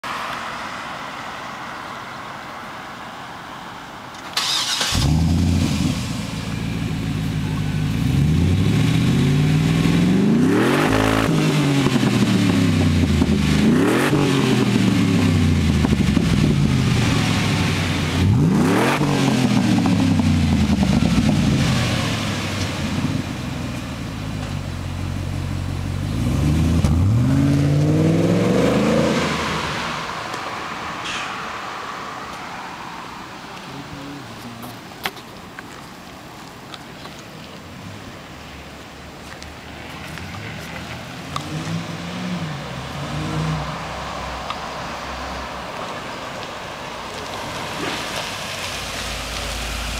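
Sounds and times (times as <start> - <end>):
car engine idling and revving: 0.0 - 35.6, 37.7 - 49.9
car engine starting: 4.2 - 31.6.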